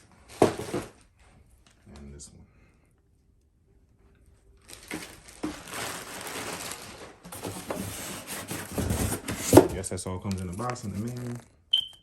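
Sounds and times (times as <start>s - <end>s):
packaging rustling and crinkling: 4.6s - 11.6s.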